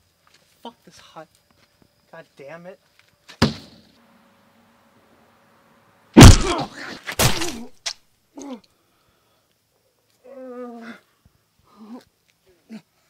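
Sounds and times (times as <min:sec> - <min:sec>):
heavy blows on body: 0:06.2 - 0:07.6
man groaning: 0:06.2 - 0:07.7.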